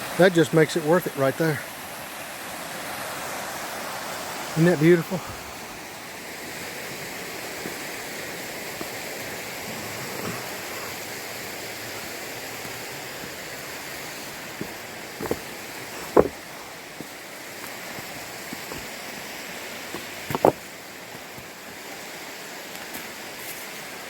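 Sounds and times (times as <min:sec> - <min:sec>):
flowing water rushing: 0:00.0 - 0:24.0
short knocks: 0:16.1 - 0:16.4.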